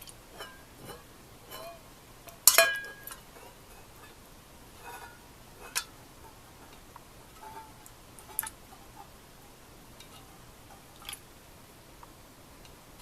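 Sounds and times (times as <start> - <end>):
tableware tapping and clicking: 2.4 - 3.2
glass clinking: 2.5 - 3.5.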